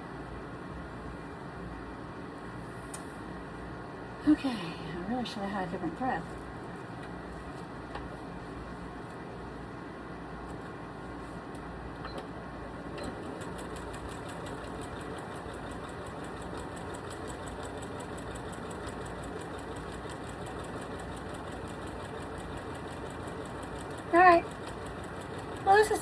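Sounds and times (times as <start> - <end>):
sewing machine stitching: 13.0 - 26.0.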